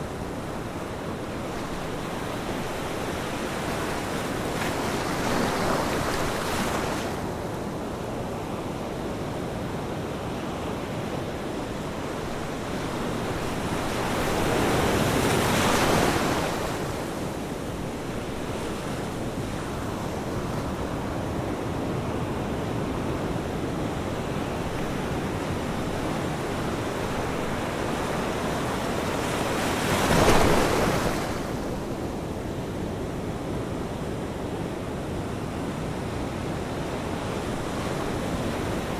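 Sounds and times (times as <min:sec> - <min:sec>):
ocean surf washing: 0:00.0 - 0:38.9
waves breaking: 0:01.5 - 0:07.2, 0:24.6 - 0:32.0.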